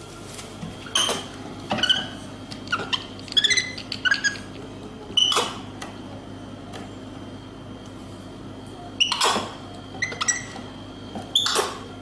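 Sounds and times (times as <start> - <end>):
steady low hum: 0.0 - 12.0
monkey squeaking: 1.8 - 4.4.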